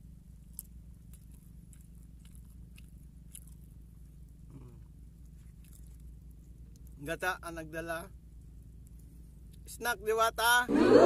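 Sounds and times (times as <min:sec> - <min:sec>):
steady low hum: 0:00.0 - 0:11.0
man chewing: 0:00.4 - 0:06.9.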